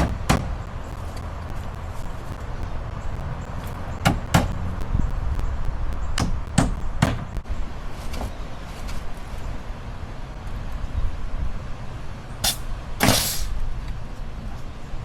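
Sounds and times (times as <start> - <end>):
sharp knocks: 0.0 - 0.6, 4.0 - 4.6, 6.2 - 7.4
steady low rumble: 0.0 - 8.6.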